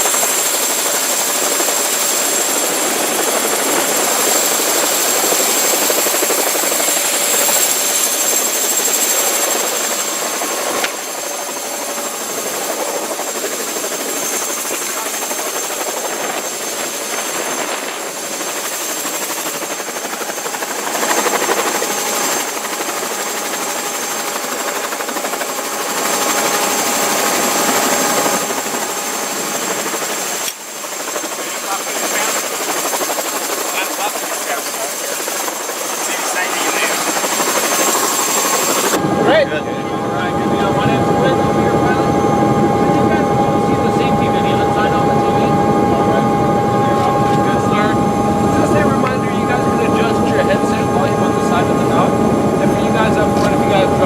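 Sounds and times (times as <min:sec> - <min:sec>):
helicopter turbine and rotor: 0:00.0 - 0:54.0
high whine: 0:38.9 - 0:54.0.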